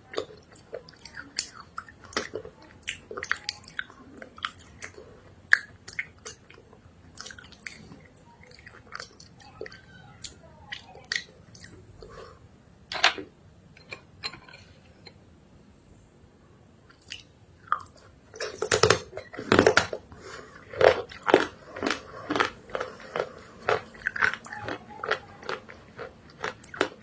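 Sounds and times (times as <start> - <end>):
chewing crunches: 16.9 - 27.0.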